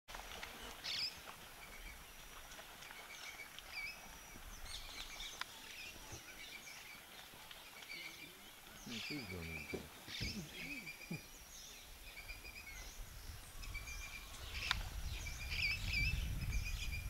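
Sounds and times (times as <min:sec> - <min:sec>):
birds chirping and whistling: 0:08.8 - 0:17.0.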